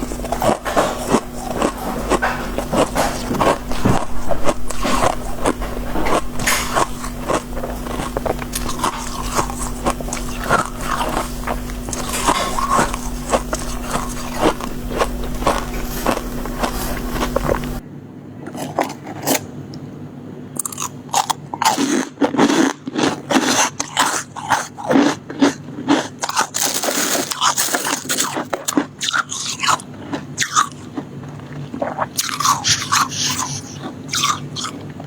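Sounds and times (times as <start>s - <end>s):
chewing crunchy ice: 0.0s - 17.8s, 18.4s - 19.5s, 20.6s - 35.0s
low steady hum: 0.0s - 21.1s.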